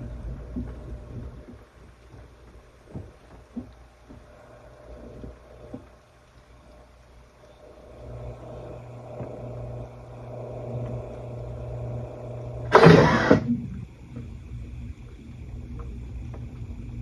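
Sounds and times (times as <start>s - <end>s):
washing machine motor humming: 0.0s - 17.0s
short loud burst of noise: 12.7s - 13.6s.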